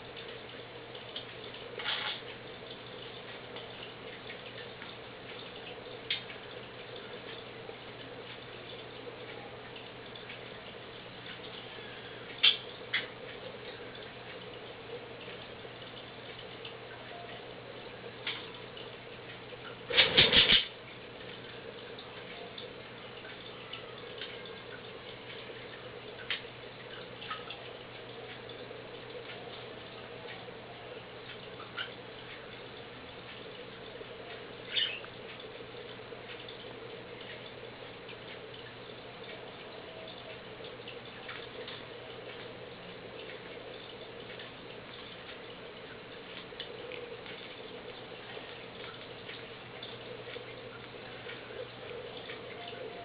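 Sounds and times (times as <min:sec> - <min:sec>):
steady low hum: 0:00.0 - 0:53.0
bird toys clicking and tapping: 0:01.2 - 0:02.3, 0:19.9 - 0:20.7, 0:34.7 - 0:35.4.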